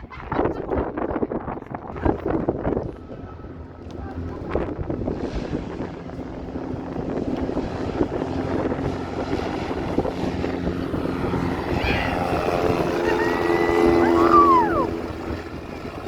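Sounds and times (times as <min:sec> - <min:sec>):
propeller engine droning: 0:00.7 - 0:16.0.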